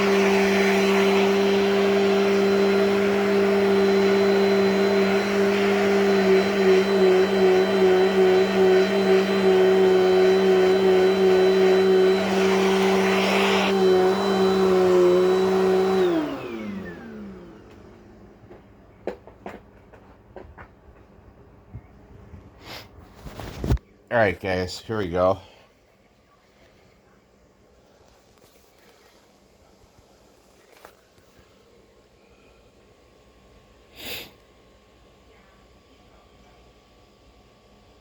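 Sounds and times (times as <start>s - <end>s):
hand vacuum motor whine: 0.0s - 18.2s.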